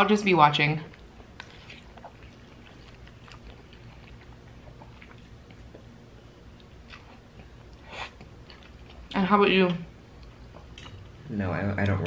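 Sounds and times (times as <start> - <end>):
chewing and slurping noodles: 1.0 - 5.8.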